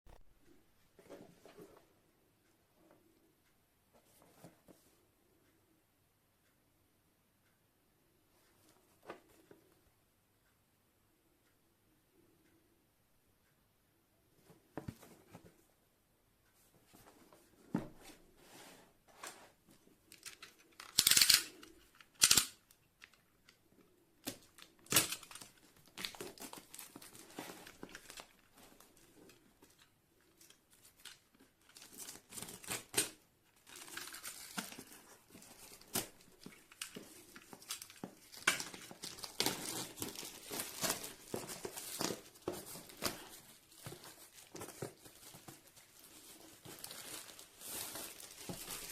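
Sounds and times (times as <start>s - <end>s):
packaging crinkling: 24.3s - 28.8s, 30.4s - 48.9s.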